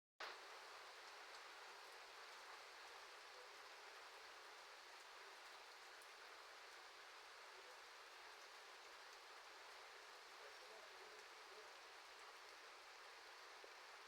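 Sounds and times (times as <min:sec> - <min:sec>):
light raindrop ticks: 0:00.2 - 0:14.0
rain hissing: 0:00.2 - 0:14.0.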